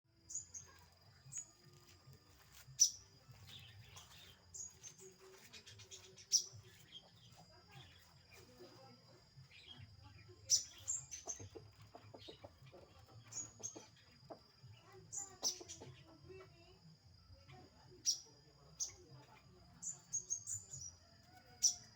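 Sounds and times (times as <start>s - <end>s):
bird chirping: 2.6s - 16.4s, 18.0s - 21.0s.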